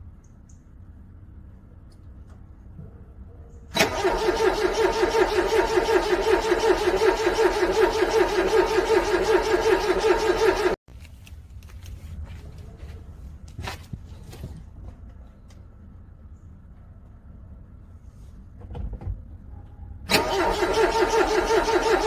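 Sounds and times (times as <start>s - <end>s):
car engine cranking on starter: 3.7s - 10.8s, 20.1s - 22.0s.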